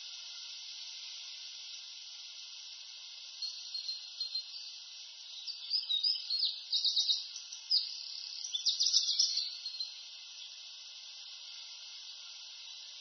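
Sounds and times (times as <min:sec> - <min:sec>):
high background hiss: 0:00.0 - 0:13.0
songbird singing trills: 0:03.4 - 0:10.0.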